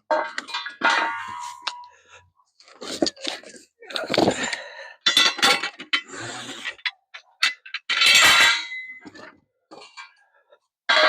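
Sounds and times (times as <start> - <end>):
metal parts clanking: 0.1 - 1.9, 2.8 - 10.2.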